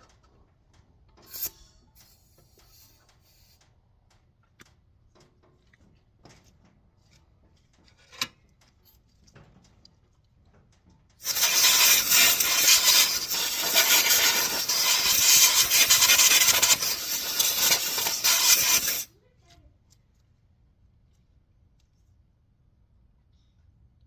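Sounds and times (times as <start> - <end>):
harsh scraping noise: 11.2 - 19.1.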